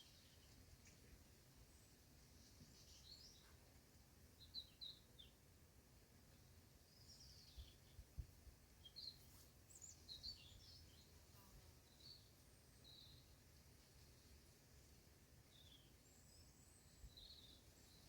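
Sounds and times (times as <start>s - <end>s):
small birds chirping: 1.7s - 3.8s, 4.4s - 5.4s, 6.8s - 13.4s, 15.5s - 18.0s
low rumble of wind: 6.7s - 8.9s.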